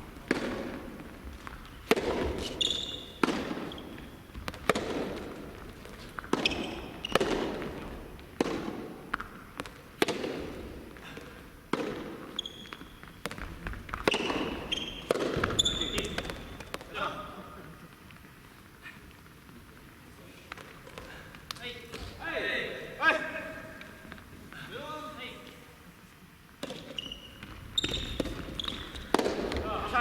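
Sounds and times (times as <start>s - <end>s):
shoes squeaking on court: 0.0s - 11.1s, 11.7s - 17.0s, 26.6s - 30.0s
rackets hitting tennis ball: 0.0s - 17.0s, 26.6s - 30.0s.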